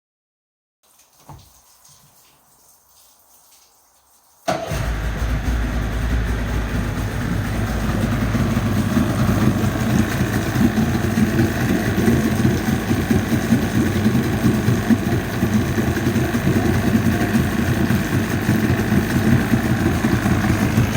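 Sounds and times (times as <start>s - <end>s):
outboard motor idling: 4.5s - 20.9s.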